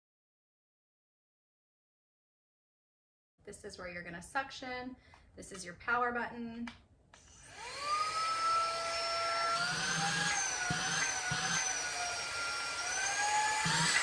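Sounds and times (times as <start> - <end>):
handheld vacuum motor whine: 7.2 - 14.0.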